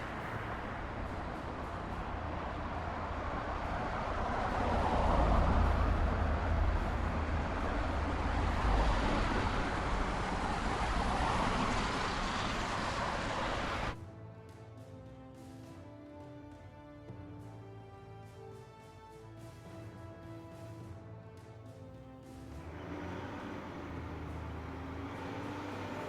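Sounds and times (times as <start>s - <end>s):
heavy vehicle engine and road noise: 0.0s - 14.0s, 21.9s - 26.0s.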